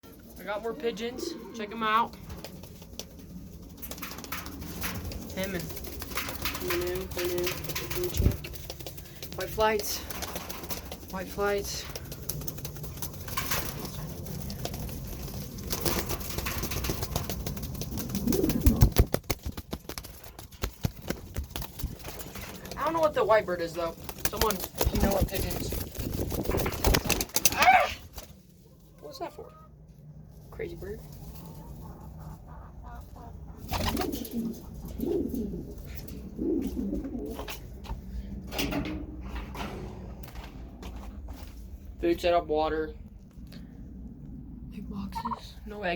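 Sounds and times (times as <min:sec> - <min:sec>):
pigeons cooing: 0:00.2 - 0:19.3, 0:31.1 - 0:38.4.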